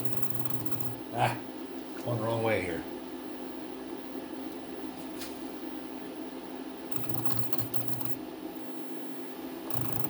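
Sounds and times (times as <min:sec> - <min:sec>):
buzzy pulsing motor drive: 0:00.0 - 0:01.2, 0:06.9 - 0:10.0
machine hum: 0:00.0 - 0:10.0.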